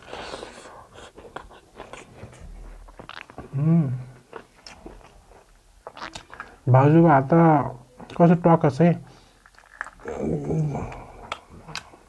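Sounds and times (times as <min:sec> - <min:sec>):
close chewing: 0:00.0 - 0:06.6, 0:09.4 - 0:12.0
person humming: 0:03.5 - 0:04.2, 0:10.0 - 0:11.3
wet mouth clicks: 0:05.8 - 0:06.6.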